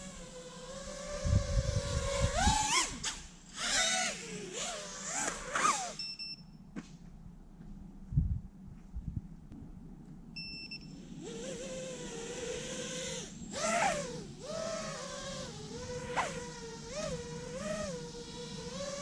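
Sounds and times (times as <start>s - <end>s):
drone motors whining: 0.0s - 6.1s, 10.9s - 19.0s.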